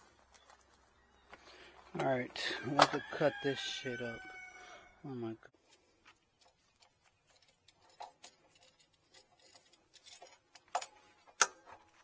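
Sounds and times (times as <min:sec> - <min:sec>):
hand tools clicking and tapping: 0:02.0 - 0:03.0, 0:06.4 - 0:12.0.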